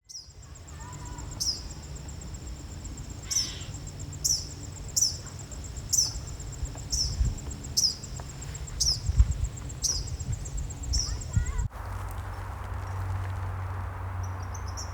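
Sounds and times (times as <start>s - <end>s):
bird giving sharp calls: 3.1s - 6.3s.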